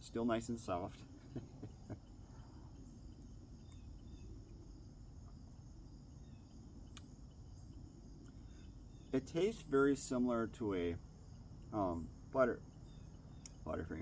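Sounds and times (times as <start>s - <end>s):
faint high-pitched whine: 0.0s - 14.0s
low steady hum: 0.0s - 14.0s
faint click: 6.9s - 7.1s.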